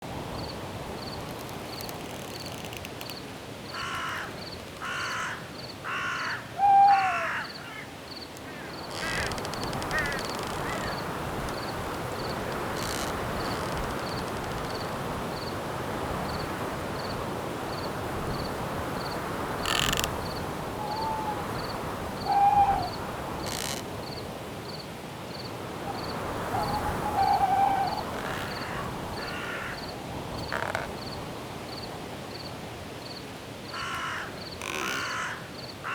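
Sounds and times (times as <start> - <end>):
wind in trees: 0.0 - 35.9
cricket chirping: 0.4 - 15.6, 16.2 - 35.8
short hooting calls: 6.1 - 7.6, 20.7 - 23.8, 26.4 - 29.8
harsh animal calls: 8.8 - 11.0, 26.4 - 29.8.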